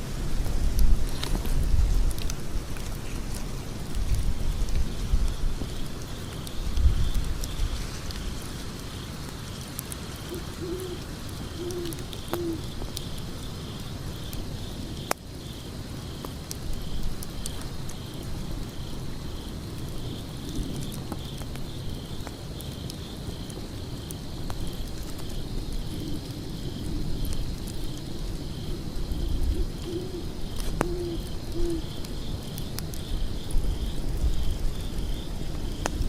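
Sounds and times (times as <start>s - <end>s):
wood fire crackling: 0.0s - 36.0s
insects chirping: 1.1s - 36.0s
bird hooting: 10.3s - 11.0s, 11.6s - 12.7s, 29.5s - 31.9s.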